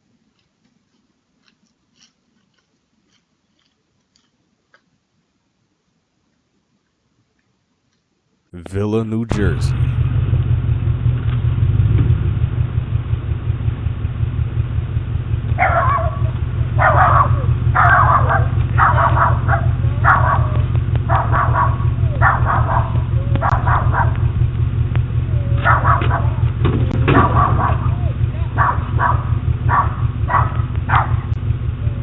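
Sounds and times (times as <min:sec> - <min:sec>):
dog barking: 0:15.6 - 0:24.2, 0:25.5 - 0:26.5, 0:27.1 - 0:31.4.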